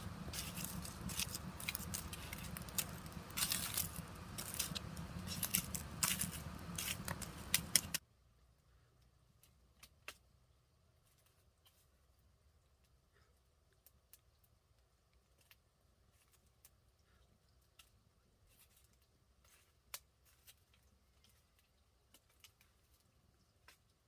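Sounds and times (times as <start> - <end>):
faint clicks and ticks: 0.0 - 8.0.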